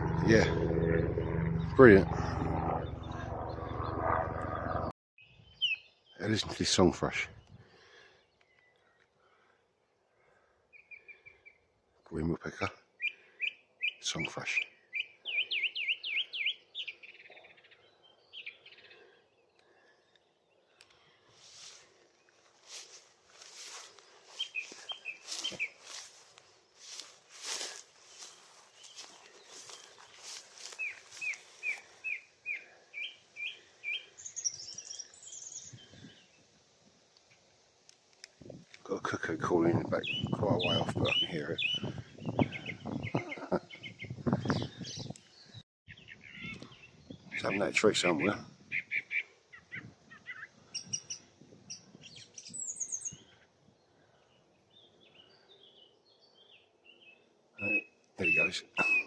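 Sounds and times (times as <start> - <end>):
song thrush singing: 5.2 - 6.5, 10.7 - 12.1, 12.9 - 36.5, 39.3 - 59.0.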